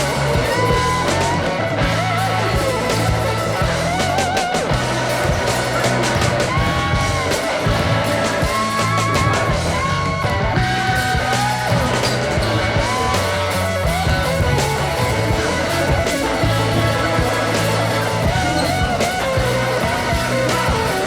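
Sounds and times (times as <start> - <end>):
rock music with electric guitar: 0.0 - 21.0
steady bass line: 0.0 - 21.0.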